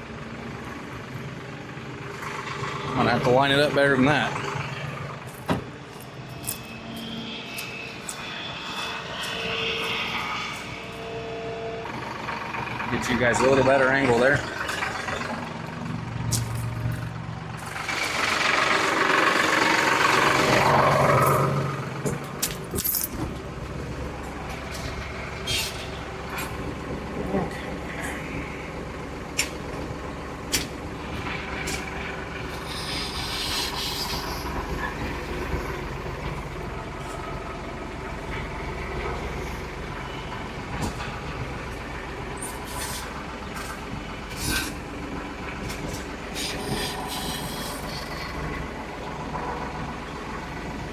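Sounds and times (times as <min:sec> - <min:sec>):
diesel engine running: 0:00.0 - 0:50.9
air release hiss: 0:32.6 - 0:35.5, 0:46.4 - 0:48.4.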